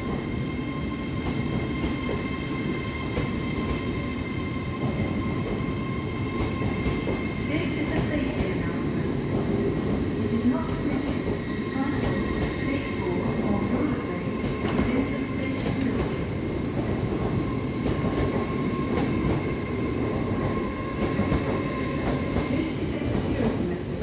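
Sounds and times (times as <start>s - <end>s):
high train whine: 0.0s - 24.0s
train wheels rumbling: 0.0s - 24.0s.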